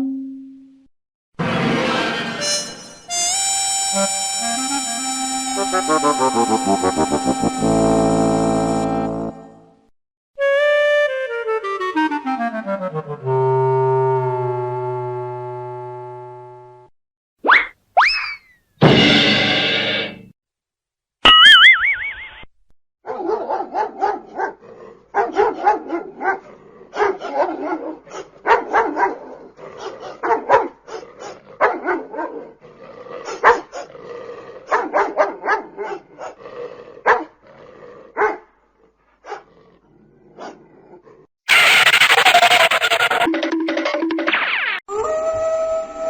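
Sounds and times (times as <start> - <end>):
wavering cartoon-like tone: 2.4 - 9.1, 41.5 - 45.3
dog barking and yipping: 23.1 - 24.6, 25.2 - 32.5, 33.2 - 33.9, 34.7 - 36.4, 37.0 - 37.4, 38.2 - 38.4, 39.2 - 39.5, 41.5 - 43.3.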